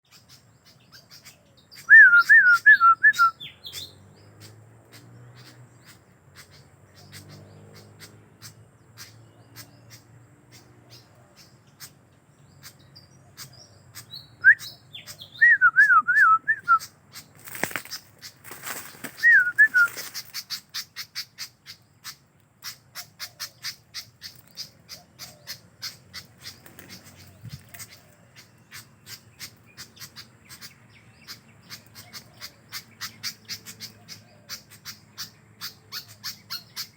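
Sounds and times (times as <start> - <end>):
songbird whistling: 0.1 - 4.0, 14.0 - 16.9, 18.7 - 20.4
rustling: 17.3 - 20.6.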